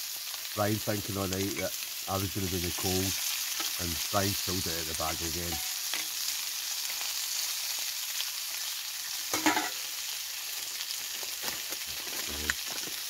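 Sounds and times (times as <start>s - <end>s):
meat sizzling: 0.0s - 13.0s
crackles and pops: 11.0s - 13.0s.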